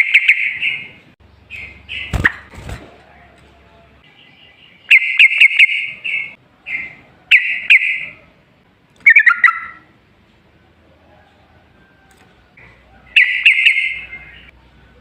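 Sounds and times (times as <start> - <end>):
bird chattering song: 0.0 - 2.5, 4.0 - 8.2, 9.0 - 9.9, 13.0 - 14.6.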